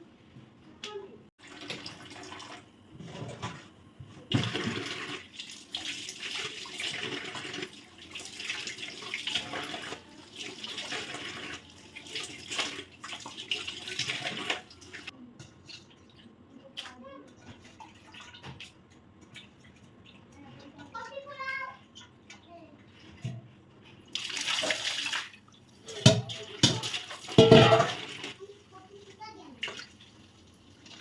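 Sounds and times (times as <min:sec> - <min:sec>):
tap water splashing into sink: 0:24.2 - 0:28.4.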